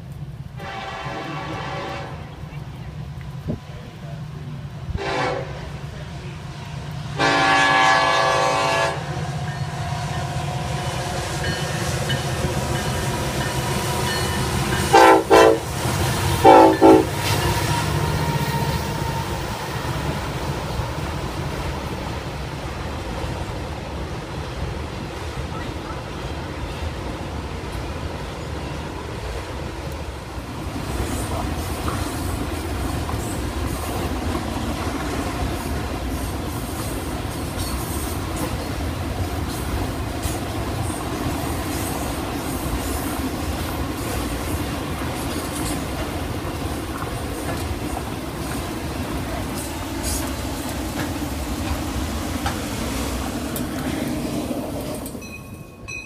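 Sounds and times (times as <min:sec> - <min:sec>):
train rolling past: 0:00.0 - 0:56.0
wheels clicking over rail joints: 0:11.2 - 0:56.0.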